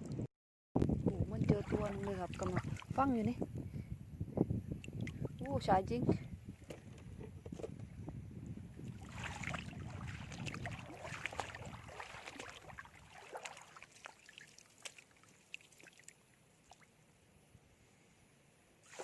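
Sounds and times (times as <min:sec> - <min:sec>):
wind rumble on microphone: 0:00.0 - 0:13.2
shallow seawater splashing: 0:01.3 - 0:03.0, 0:08.9 - 0:16.0.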